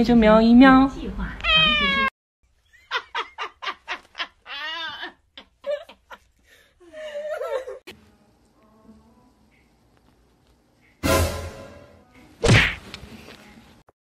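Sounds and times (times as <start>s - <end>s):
person laughing: 2.8s - 7.8s.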